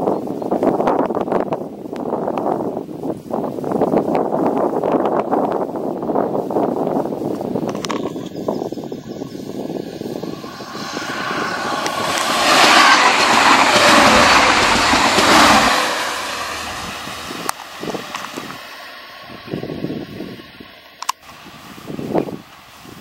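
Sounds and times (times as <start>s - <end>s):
train wheels on rails: 6.8s - 21.4s
diesel train passing: 8.6s - 22.8s.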